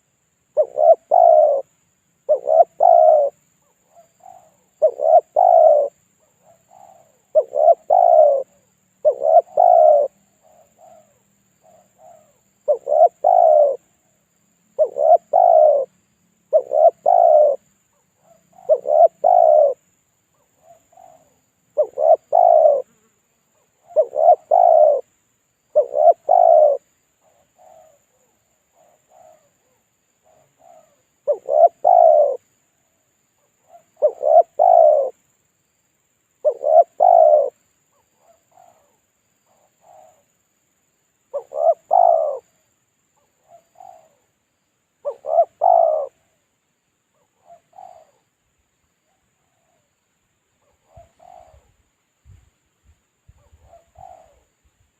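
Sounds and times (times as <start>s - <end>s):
dove cooing: 0.0s - 14.1s, 14.8s - 19.8s, 20.4s - 25.1s, 25.7s - 32.5s, 33.4s - 35.2s, 36.4s - 40.3s, 41.3s - 42.6s, 43.2s - 44.3s, 45.0s - 46.4s, 47.2s - 48.4s, 50.6s - 51.8s, 53.3s - 54.6s.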